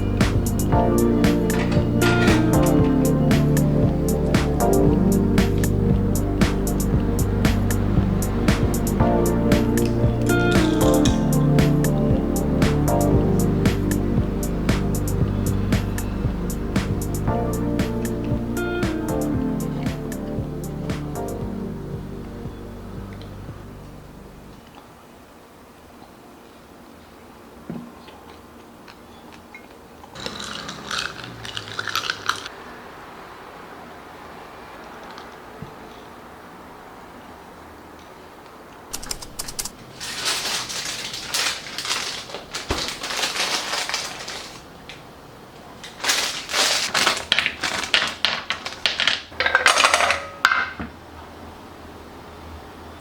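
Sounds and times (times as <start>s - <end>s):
kitchen clattering and scraping: 1.3s - 2.8s, 30.2s - 32.5s, 39.0s - 44.6s, 48.9s - 50.9s
small hard objects rattling: 30.2s - 32.5s, 39.0s - 44.7s, 45.8s - 50.7s
sharp click: 38.9s - 39.7s.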